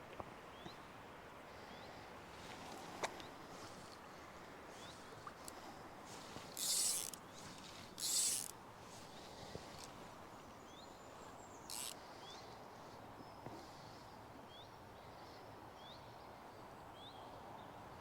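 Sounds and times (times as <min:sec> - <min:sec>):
flowing water hiss: 0:00.6 - 0:14.2.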